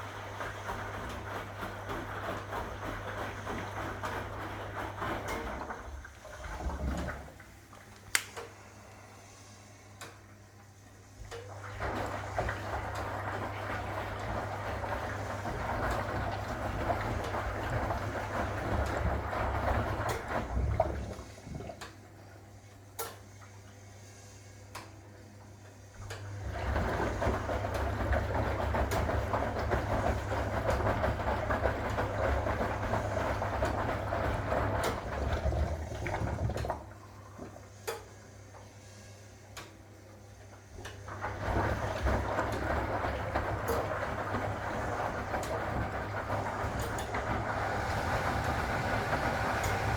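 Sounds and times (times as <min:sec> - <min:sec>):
washing machine drum humming: 0:00.0 - 0:23.8, 0:24.6 - 0:49.9
laundry swishing: 0:46.4 - 0:49.9.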